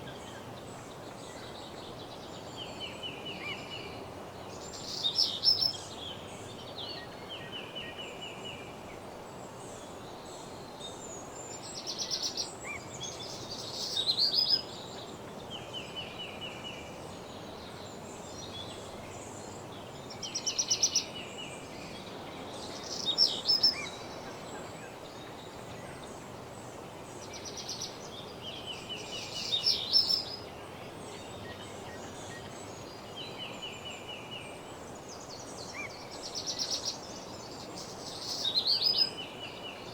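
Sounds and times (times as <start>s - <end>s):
steady background hiss: 0.0s - 39.9s
songbirds trilling: 9.8s - 39.9s.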